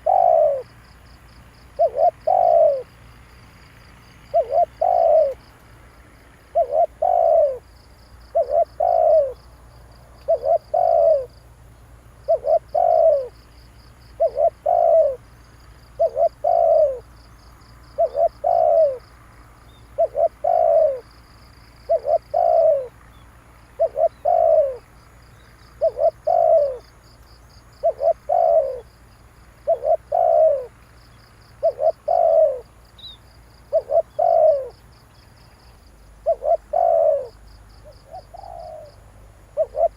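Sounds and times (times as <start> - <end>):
dove cooing: 0.0 - 0.9, 1.6 - 3.0, 4.2 - 5.5, 6.5 - 9.6, 10.2 - 11.4, 12.2 - 13.4, 14.1 - 17.1, 17.8 - 19.1, 19.7 - 23.0, 23.7 - 24.9, 25.8 - 26.9, 27.6 - 29.0, 29.6 - 30.8, 31.5 - 34.8, 36.2 - 39.9.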